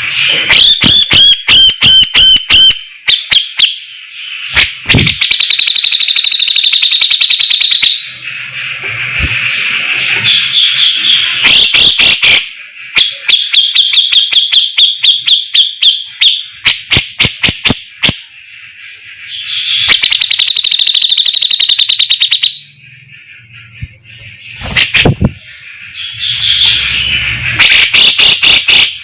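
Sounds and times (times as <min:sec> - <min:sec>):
bird singing with trills: 0:00.0 - 0:29.0.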